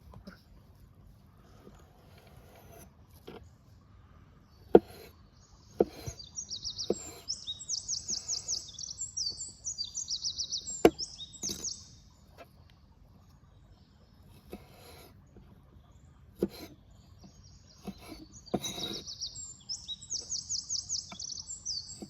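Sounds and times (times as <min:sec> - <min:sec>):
songbird trilling: 0:05.3 - 0:12.1, 0:16.8 - 0:22.0.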